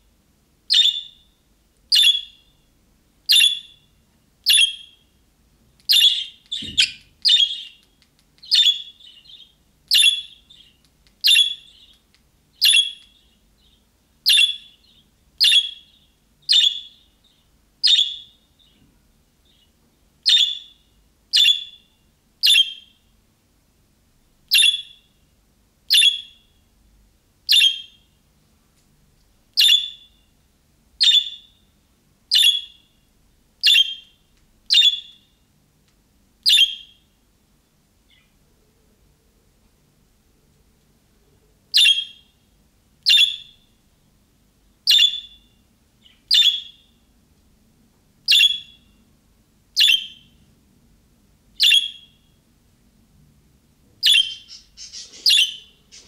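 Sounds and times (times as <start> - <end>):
budgerigar calls: 54.0 - 56.0.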